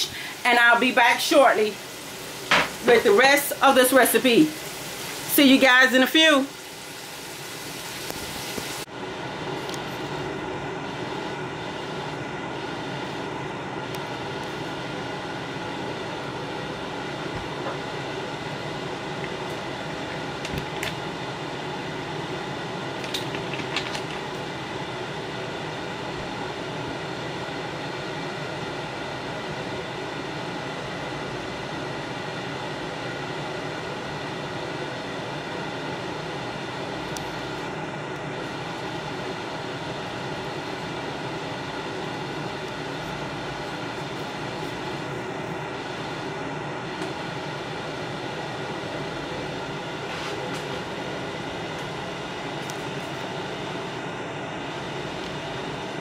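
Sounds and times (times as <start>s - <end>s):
fish sizzling in grease: 0.0s - 8.9s
constant hum: 0.0s - 56.0s
grease popping: 23.0s - 24.3s.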